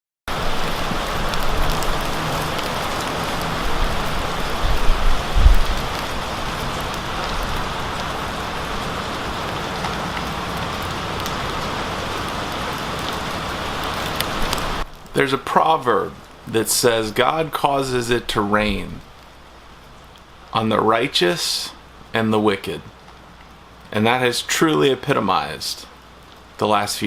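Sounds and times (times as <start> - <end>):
steady rain falling: 0.3 - 27.0
low thuds: 4.6 - 5.8.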